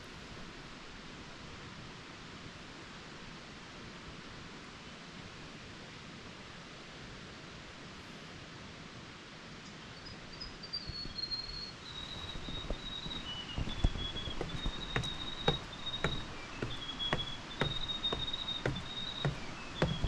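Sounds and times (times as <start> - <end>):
soft footfalls on a trail: 10.6 - 20.0.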